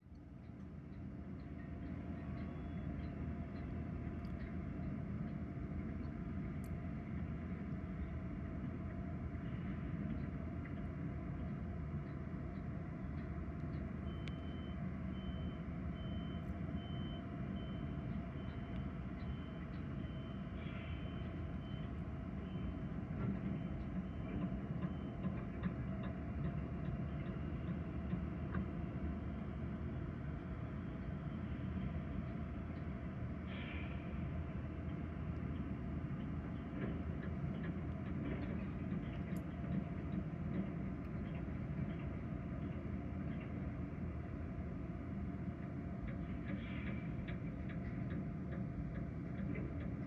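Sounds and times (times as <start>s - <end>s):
heavy machinery engine rumble: 0.7s - 50.0s
reversing alarm beeping: 2.4s - 3.4s, 13.9s - 26.5s.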